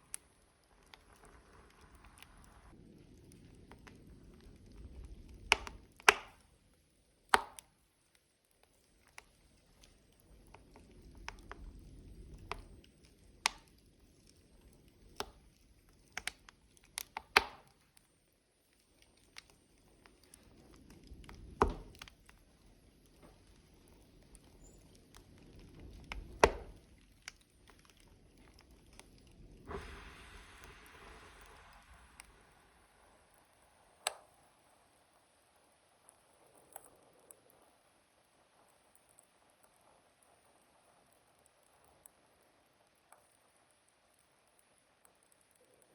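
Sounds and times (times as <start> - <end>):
low rush of flame: 0.0 - 6.7, 8.9 - 17.0, 19.2 - 38.6
burning logs crackling: 0.0 - 45.9.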